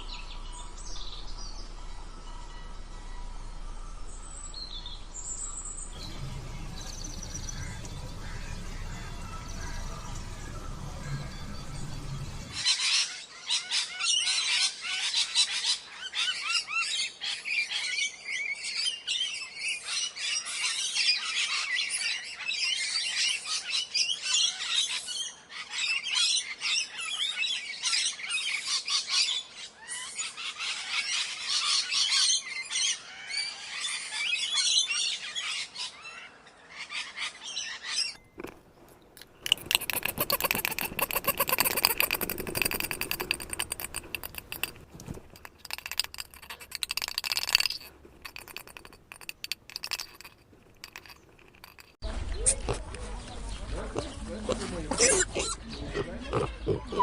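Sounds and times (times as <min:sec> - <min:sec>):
birds chirping: 0:00.0 - 0:12.7, 0:38.0 - 0:57.0.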